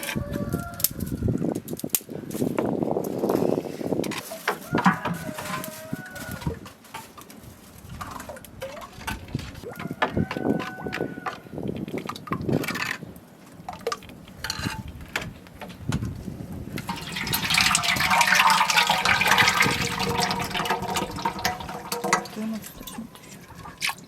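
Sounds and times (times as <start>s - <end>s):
liquid pouring into container: 16.8s - 24.0s.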